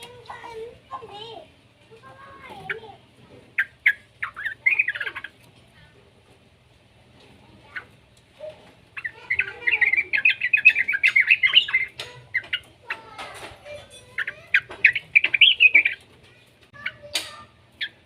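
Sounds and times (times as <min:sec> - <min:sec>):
bird chattering song: 0:02.4 - 0:05.6, 0:07.6 - 0:18.0.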